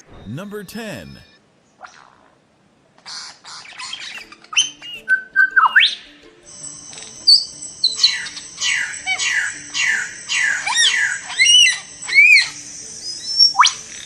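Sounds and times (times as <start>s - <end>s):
soft background music: 3.6s - 14.0s.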